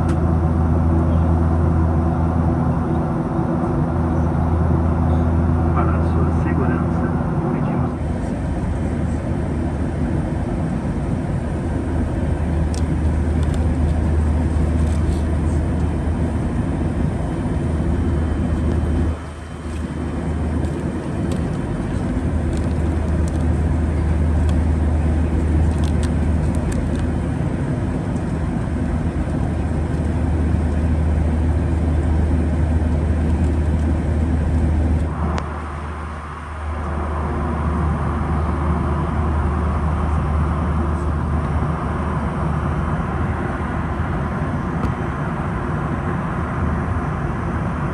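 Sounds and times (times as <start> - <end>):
airplane cabin engine hum: 0.0 - 47.9.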